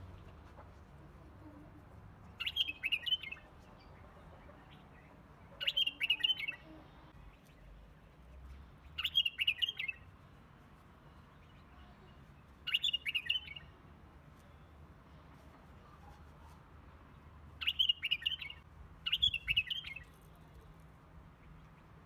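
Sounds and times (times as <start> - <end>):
bird chirping: 2.2 - 10.1, 11.0 - 13.8, 17.6 - 20.3.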